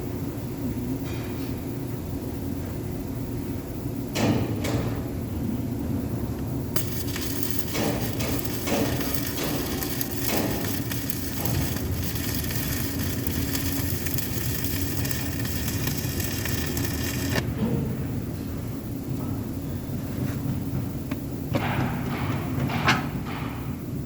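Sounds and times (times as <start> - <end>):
arc welding crackle: 6.8 - 17.4.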